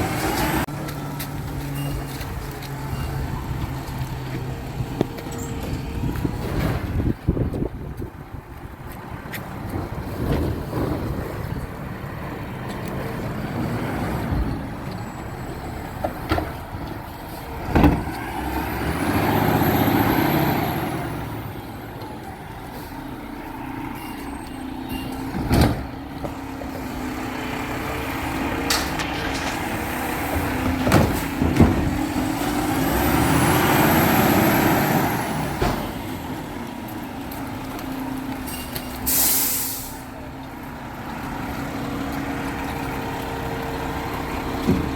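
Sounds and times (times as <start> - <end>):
garbage truck running: 0.0 - 44.9
air brakes hissing: 38.5 - 40.2.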